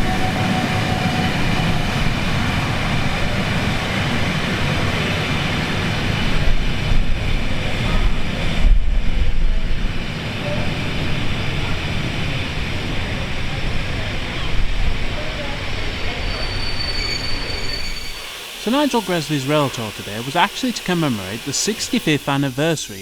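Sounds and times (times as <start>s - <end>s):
steam train rolling: 0.0s - 23.0s.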